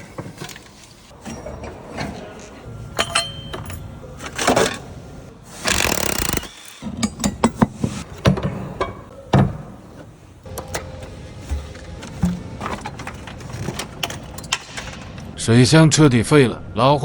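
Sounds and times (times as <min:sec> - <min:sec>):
hand tools clanking on metal: 0:00.3 - 0:04.8, 0:10.5 - 0:15.4
background music: 0:08.5 - 0:17.0.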